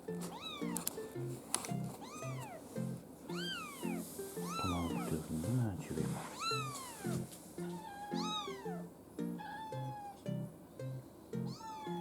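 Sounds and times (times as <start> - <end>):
background music with plucked notes: 0.0 - 12.0
kitten meowing: 0.3 - 0.8, 2.0 - 2.6, 3.3 - 5.1, 6.2 - 10.2, 11.4 - 12.0.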